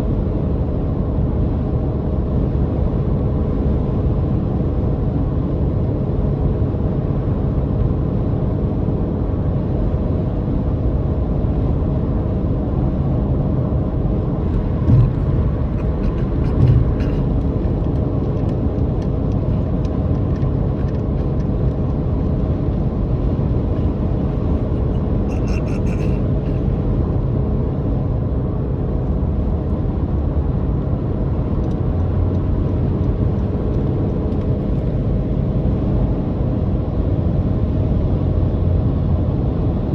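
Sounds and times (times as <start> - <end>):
low road rumble: 0.0 - 39.9
car engine droning: 13.2 - 36.2
short thumps: 14.4 - 18.5.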